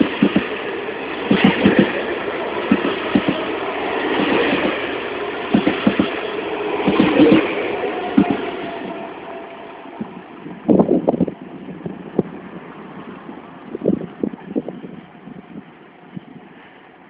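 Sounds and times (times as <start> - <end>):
wheels knocking on rail joints: 0.0 - 9.0
train rolling rumble: 0.0 - 17.0.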